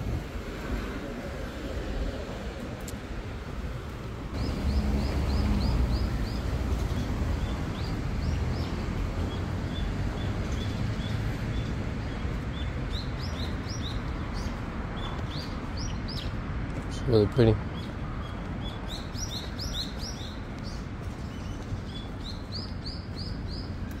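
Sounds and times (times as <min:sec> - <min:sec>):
songbird chirping: 0:04.4 - 0:16.4, 0:17.6 - 0:24.0.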